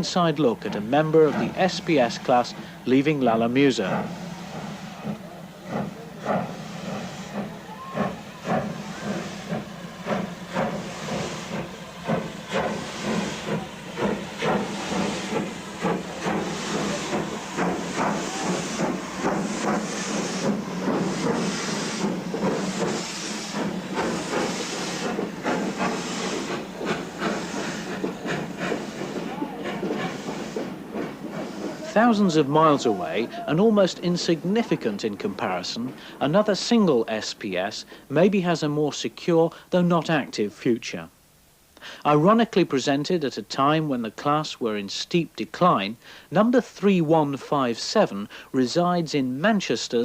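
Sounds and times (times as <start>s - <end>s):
steam hissing: 0.0s - 38.8s
steam locomotive exhaust beats: 0.0s - 38.8s.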